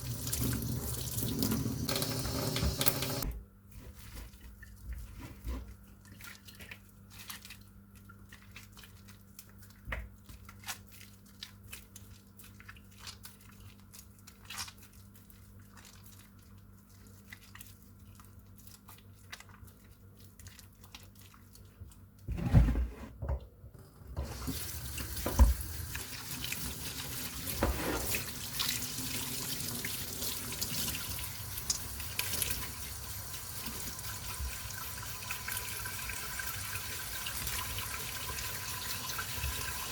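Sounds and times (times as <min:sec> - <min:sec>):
water tap running into sink: 0:00.0 - 0:03.3, 0:24.2 - 0:39.9.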